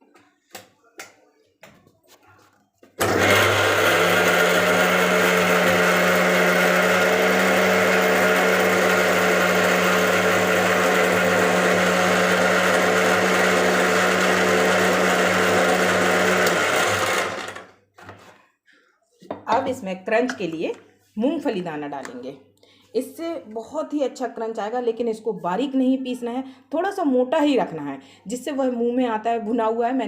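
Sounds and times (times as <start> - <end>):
electric mixer grinder running: 3.0 - 17.7.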